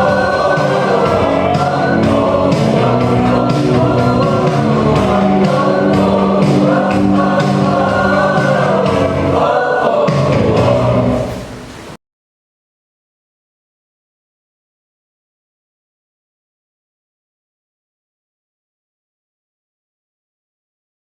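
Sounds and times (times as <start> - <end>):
accompaniment with steady beat: 0.0 - 11.4
choir singing a march: 0.0 - 11.5.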